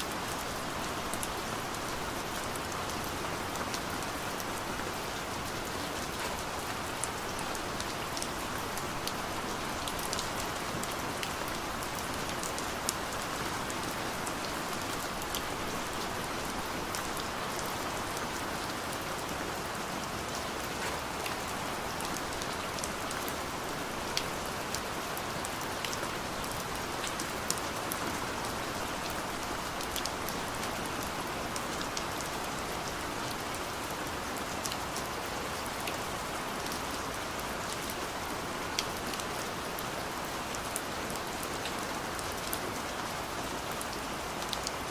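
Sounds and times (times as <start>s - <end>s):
rain on a car roof: 0.0s - 44.9s.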